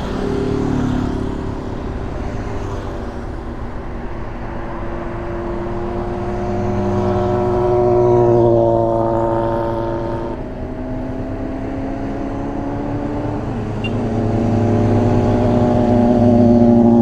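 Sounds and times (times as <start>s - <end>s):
motorcycle engine running: 0.0s - 17.0s
road noise: 0.0s - 17.0s.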